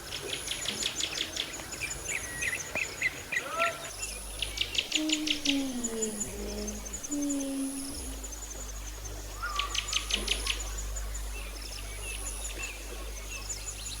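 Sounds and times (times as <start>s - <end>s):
steady low hum: 3.9s - 14.0s.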